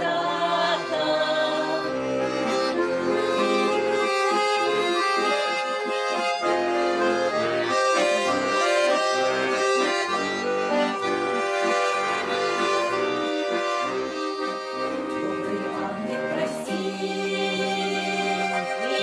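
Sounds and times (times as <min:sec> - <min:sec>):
person singing folk song: 0:00.0 - 0:04.3, 0:07.7 - 0:09.6, 0:14.6 - 0:19.0
accordion playing: 0:00.0 - 0:19.0.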